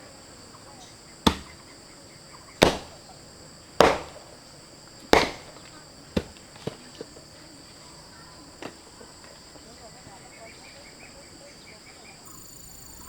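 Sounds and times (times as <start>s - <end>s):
insects droning: 0.0s - 13.0s
sharp chopping blows: 1.2s - 1.7s, 2.6s - 3.1s, 3.8s - 4.5s, 5.1s - 6.8s.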